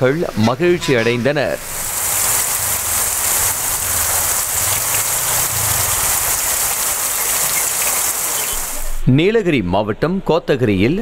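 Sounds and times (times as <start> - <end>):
heavy rain on road: 1.0 - 9.0
low rumble: 1.6 - 7.6.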